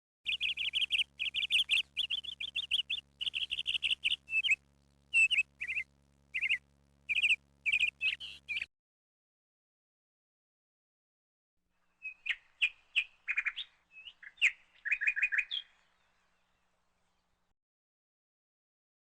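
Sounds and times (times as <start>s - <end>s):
faint steady low hum: 0.3s - 8.7s, 11.8s - 17.5s
small bird chirping: 0.3s - 8.7s, 11.8s - 17.3s.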